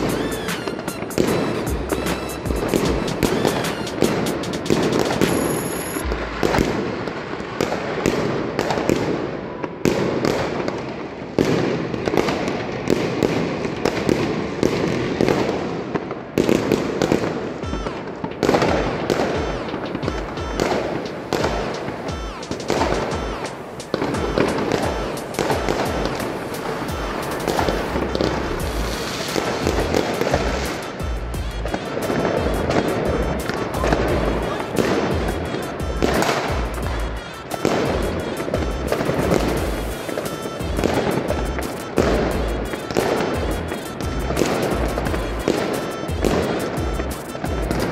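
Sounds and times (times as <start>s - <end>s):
background music: 0.0s - 7.0s, 17.6s - 47.9s
fireworks bangs and crackles: 0.0s - 47.9s.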